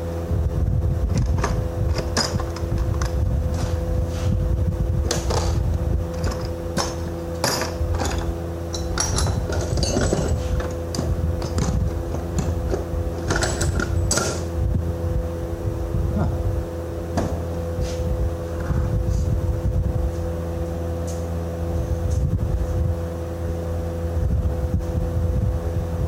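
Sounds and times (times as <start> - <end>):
motor droning: 0.0 - 26.0
metal tools clinking: 5.2 - 14.4.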